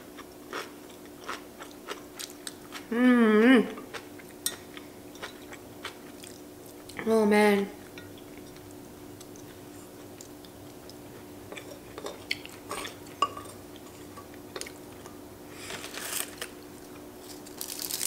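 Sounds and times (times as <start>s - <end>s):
faint room hum: 0.0s - 18.0s
person chewing food: 0.1s - 2.9s, 3.8s - 7.0s, 7.8s - 15.9s.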